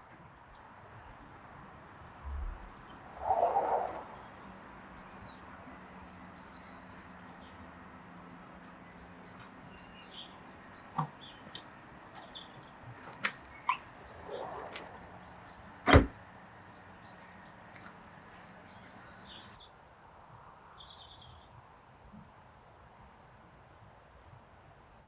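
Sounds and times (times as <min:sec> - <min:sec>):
small birds chirping: 0:02.6 - 0:21.6
sharp clicks: 0:17.7 - 0:18.0.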